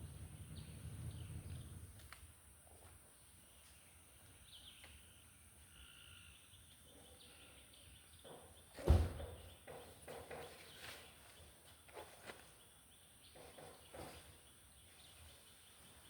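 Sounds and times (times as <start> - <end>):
soft knocks and rustles: 8.2 - 12.6, 13.3 - 14.5.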